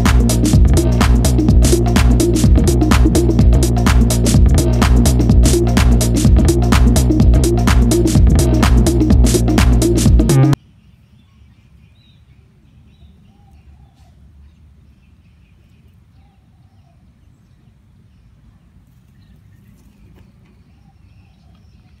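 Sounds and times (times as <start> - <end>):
low microphone rumble: 0.0 - 10.6.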